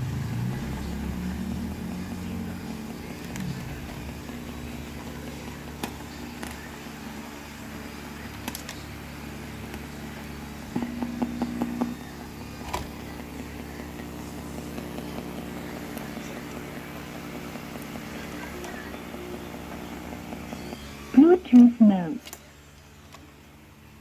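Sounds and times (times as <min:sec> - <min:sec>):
speaker low hum: 0:00.0 - 0:24.0
brief tone: 0:19.2 - 0:21.8.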